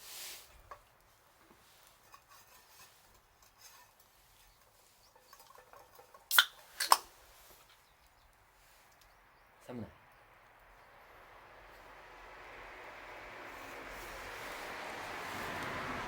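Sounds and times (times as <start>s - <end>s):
wood fire crackling: 0.0s - 9.0s
fire popping loudly: 5.4s - 7.1s.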